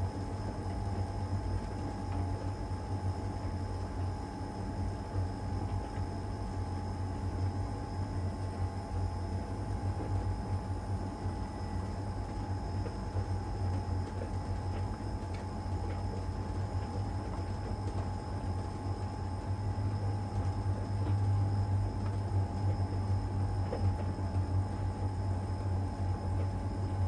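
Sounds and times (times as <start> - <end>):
dryer whine: 0.0 - 27.0.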